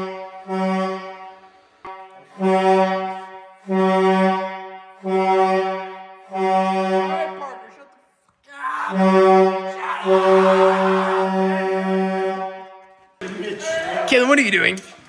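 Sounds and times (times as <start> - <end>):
truck air horn blasts: 0.0 - 7.9, 8.9 - 13.0.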